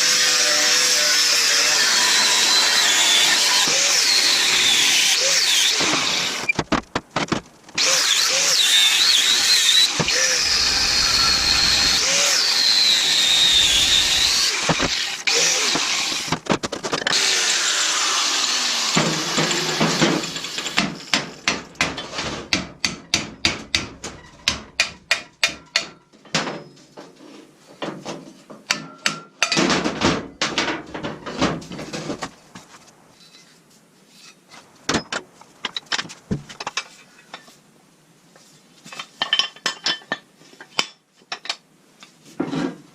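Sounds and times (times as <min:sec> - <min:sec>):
power tool squealing on metal: 0:07.8 - 0:16.1.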